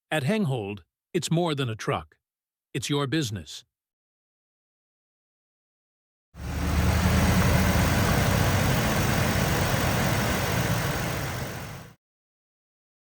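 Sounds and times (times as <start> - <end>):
van engine idling: 6.4 - 12.0.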